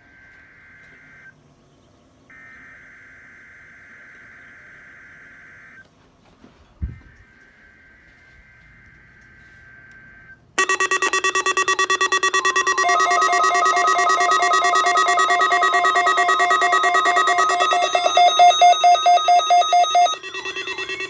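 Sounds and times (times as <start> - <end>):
faint steady tone: 7.0 - 21.0
alternating high and low beeps: 10.6 - 21.0
loud rapid alarm beeping: 10.6 - 21.0.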